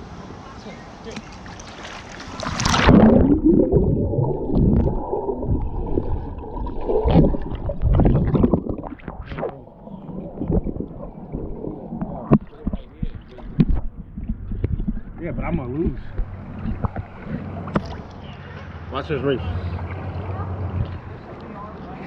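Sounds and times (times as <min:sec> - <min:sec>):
thumps of swimming strokes: 0:01.1 - 0:18.1
swimmer splashing into pool: 0:01.5 - 0:12.6
muffled underwater gurgling: 0:02.6 - 0:18.0.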